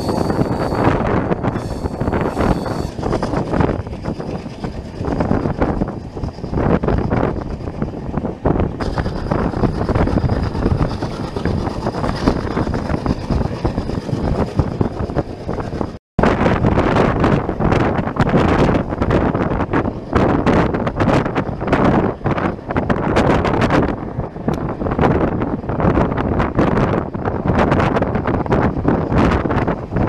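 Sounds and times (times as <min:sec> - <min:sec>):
train rumble with wheel clatter: 0:00.0 - 0:30.0
wind on microphone: 0:00.0 - 0:30.0.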